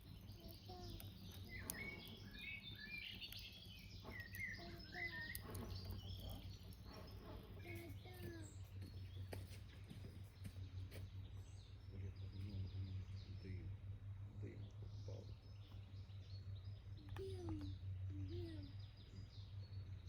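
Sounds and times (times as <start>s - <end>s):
small songbirds chirping: 0.0s - 20.0s
steady low hum: 0.0s - 20.0s
faint clicks: 0.1s - 8.9s.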